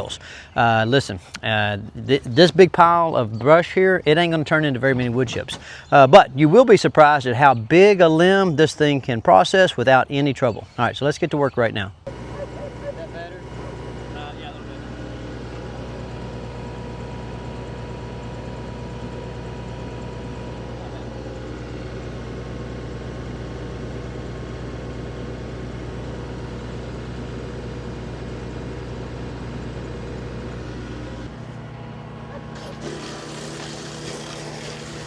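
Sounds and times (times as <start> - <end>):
tractor diesel engine running: 12.1 - 35.0
wood chipper hum: 12.1 - 35.0.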